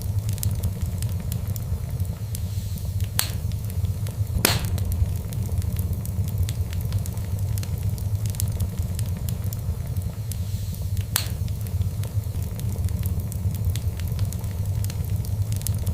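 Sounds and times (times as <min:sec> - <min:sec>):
fire crackling: 0:00.0 - 0:15.9
fire pops: 0:00.0 - 0:15.9
low rumble: 0:00.0 - 0:15.9.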